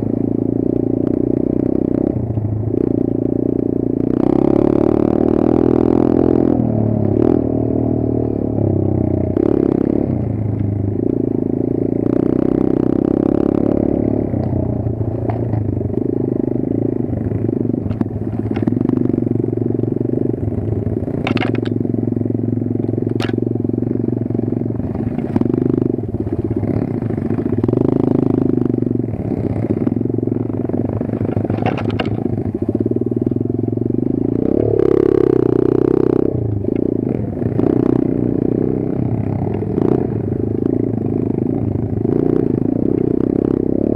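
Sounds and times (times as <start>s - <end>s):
sharp clacks: 21.2s - 21.8s
dirt bike engine revving: 23.2s - 43.9s.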